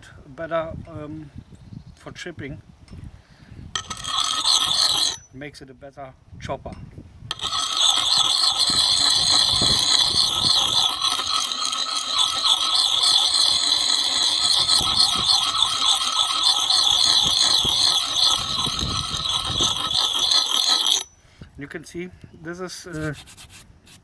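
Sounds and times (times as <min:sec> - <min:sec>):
hatchet grinding on concrete: 0:03.8 - 0:05.4, 0:07.3 - 0:21.2
high-pitched metal ring: 0:03.8 - 0:05.4, 0:07.3 - 0:21.2.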